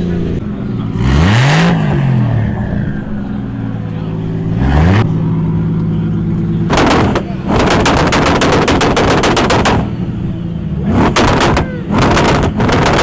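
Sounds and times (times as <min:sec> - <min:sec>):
car engine revving: 0:00.0 - 0:13.0
sharp cracking bangs: 0:06.7 - 0:13.0.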